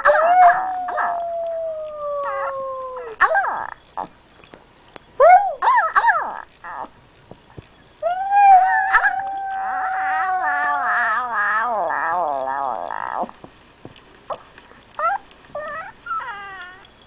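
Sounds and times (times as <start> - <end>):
dog howling: 0.0 - 3.2, 8.0 - 13.3.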